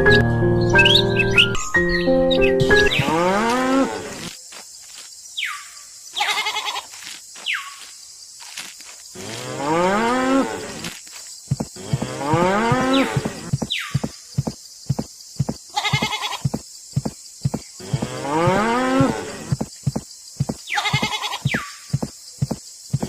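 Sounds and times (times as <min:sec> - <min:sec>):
cow mooing: 0:02.9 - 0:04.2.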